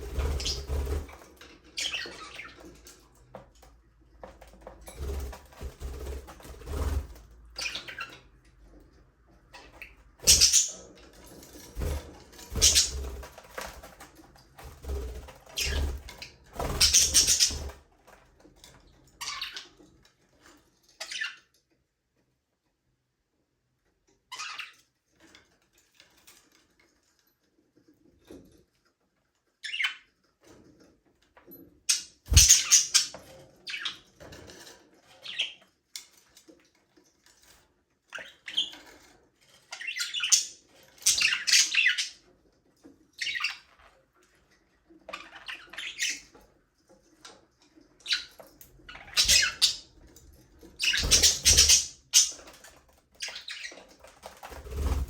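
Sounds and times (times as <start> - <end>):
budgerigars chirping and chattering: 0.0 - 1.1, 1.7 - 2.7, 7.6 - 8.2, 9.6 - 11.0, 11.7 - 13.7, 14.7 - 17.8, 19.2 - 19.7, 31.9 - 34.0, 39.7 - 42.2, 43.2 - 43.7, 45.1 - 46.3, 48.0 - 49.9, 50.7 - 52.6, 53.2 - 53.9.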